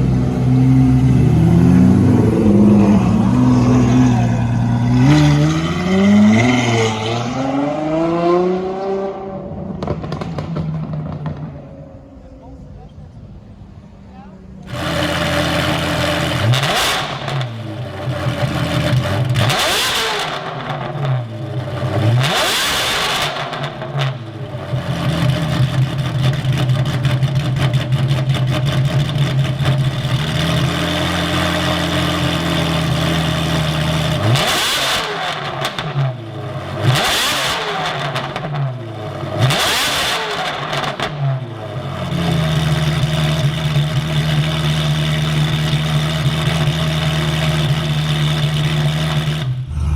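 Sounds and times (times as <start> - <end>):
car engine idling: 23.3 - 34.4, 41.6 - 49.9.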